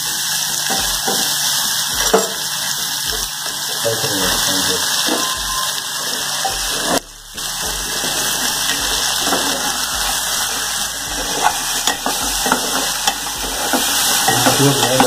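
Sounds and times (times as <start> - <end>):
vegetables sizzling in a pot: 0.0 - 15.0
metal spoon knocking on a pot: 1.9 - 2.5, 11.1 - 15.0.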